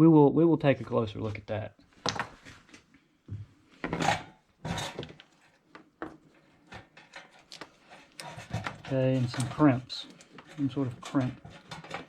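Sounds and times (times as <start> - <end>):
plastic and wire scraping and clicking: 3.9 - 12.0.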